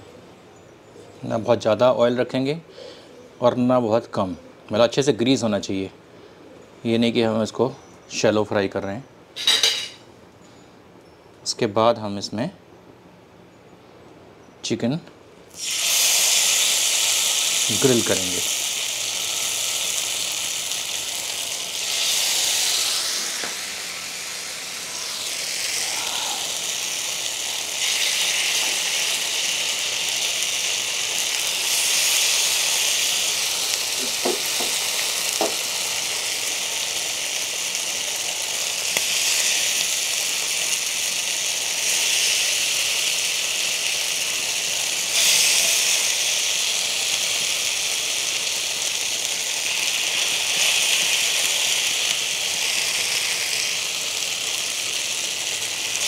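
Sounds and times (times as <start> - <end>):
chicken sizzling in a pan: 15.5 - 56.0.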